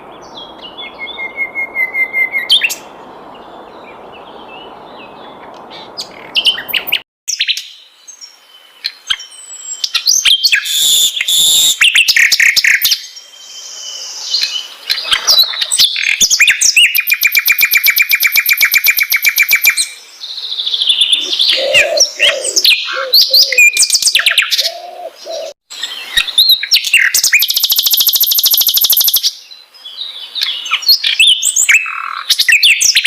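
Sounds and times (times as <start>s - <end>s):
flycatcher singing: 26.6s - 29.4s.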